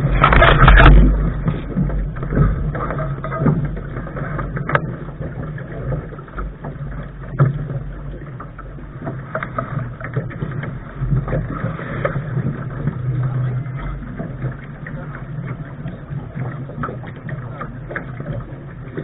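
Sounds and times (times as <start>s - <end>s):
sharp splashes or knocks: 0.0s - 3.6s
low rumble: 0.0s - 19.0s
water rushing against bow: 0.0s - 19.0s.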